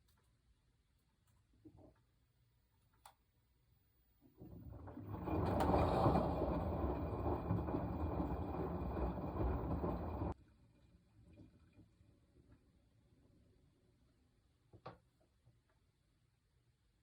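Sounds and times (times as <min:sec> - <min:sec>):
washing machine churning: 0:04.2 - 0:10.4.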